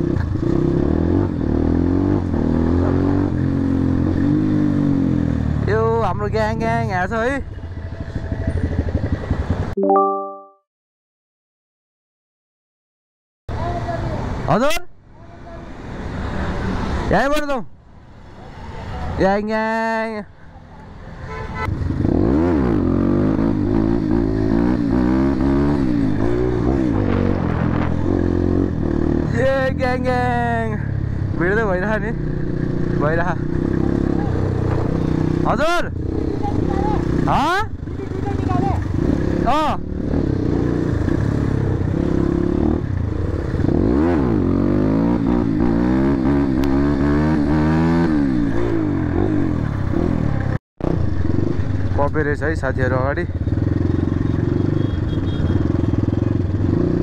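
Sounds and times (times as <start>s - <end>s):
motorcycle engine revving: 0.0s - 9.8s, 21.6s - 57.0s.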